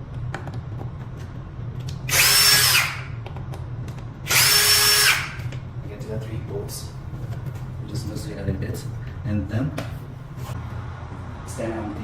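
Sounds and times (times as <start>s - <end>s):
power drill motor whine: 2.1s - 3.1s, 4.3s - 5.5s.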